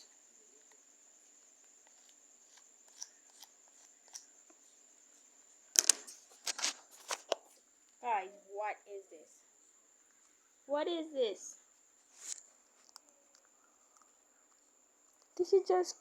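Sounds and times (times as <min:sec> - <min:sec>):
faint clicks: 0:12.2 - 0:15.4.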